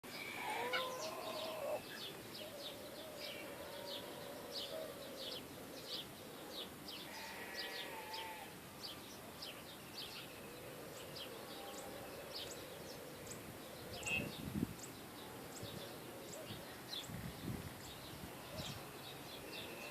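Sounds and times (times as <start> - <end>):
background hiss: 0.0 - 19.9
birds chirping: 0.0 - 19.9
lower whistled bird calls: 0.1 - 6.1, 13.2 - 15.0.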